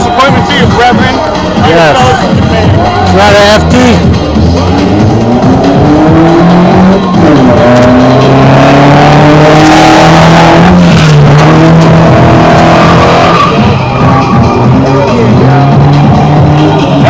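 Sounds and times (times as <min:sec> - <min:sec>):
car engine at high revs: 0:03.3 - 0:17.0
tyres squealing and skidding: 0:04.5 - 0:17.0.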